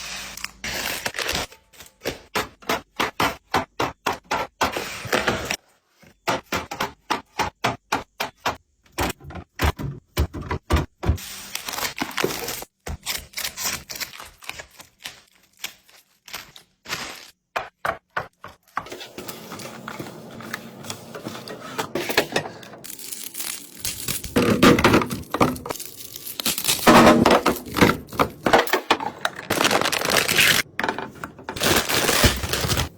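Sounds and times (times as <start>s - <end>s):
clicks and knocks of items: 14.0s - 32.9s
rustling and handling: 18.4s - 32.9s.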